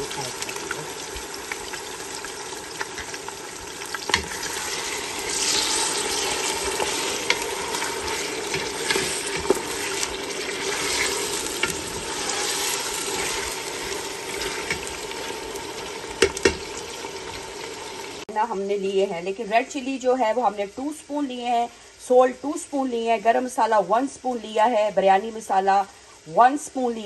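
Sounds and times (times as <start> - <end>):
chicken and onions sizzling in oil: 0.0 - 27.0
wooden spoon stirring in pot: 3.8 - 15.4.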